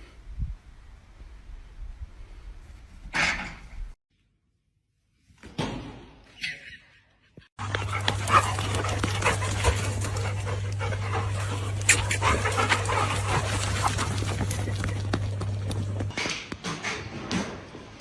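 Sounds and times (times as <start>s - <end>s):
steady low hum: 7.6s - 16.2s.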